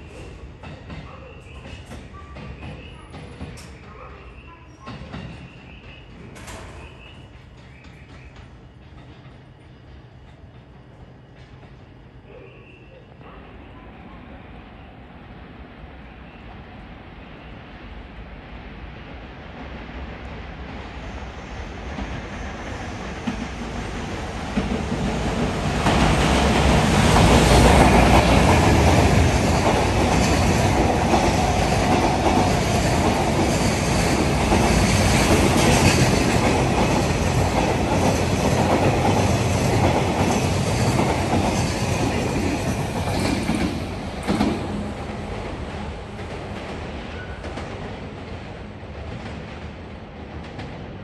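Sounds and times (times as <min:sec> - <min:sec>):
train rumble passing: 0:13.2 - 0:51.0.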